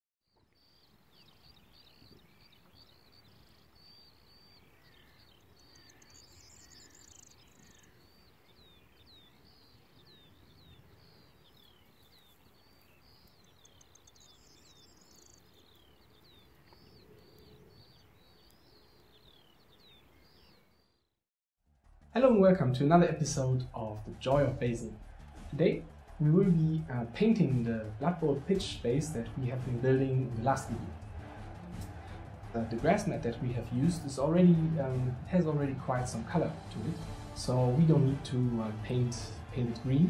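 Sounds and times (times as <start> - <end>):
bird chirping: 0.3 - 21.2.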